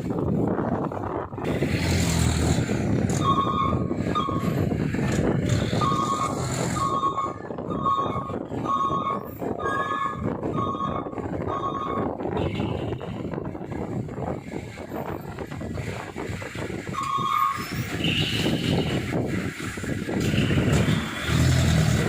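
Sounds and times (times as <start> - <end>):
truck engine rumble: 0.0 - 22.0
truck reversing alarm beeping: 3.1 - 4.6, 5.6 - 12.7, 16.9 - 17.8.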